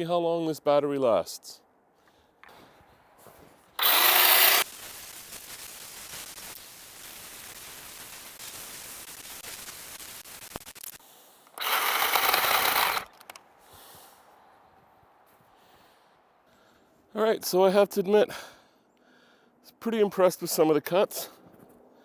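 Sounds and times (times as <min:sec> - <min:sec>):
chainsaw cutting wood: 0:03.8 - 0:04.7, 0:10.8 - 0:13.4
chainsaw motor at full speed: 0:03.8 - 0:04.7, 0:11.5 - 0:13.4.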